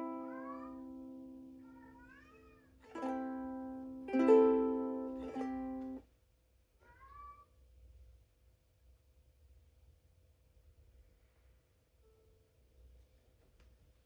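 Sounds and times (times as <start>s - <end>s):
ukulele chords strummed: 0.0s - 1.6s, 2.9s - 6.0s
cat meowing: 0.0s - 3.0s, 6.8s - 7.5s.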